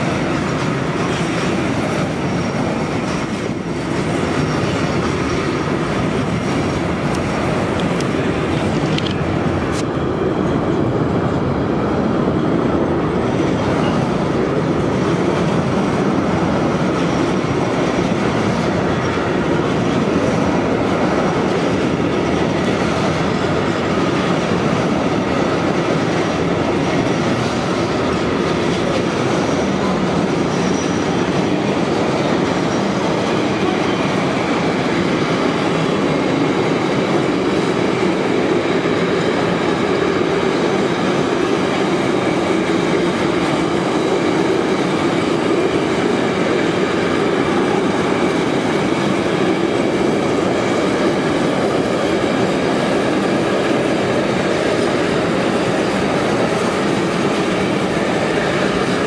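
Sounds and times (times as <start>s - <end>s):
steel wheels rumbling on rail: 0.0s - 59.0s
faint high wheel squeals: 29.2s - 31.3s.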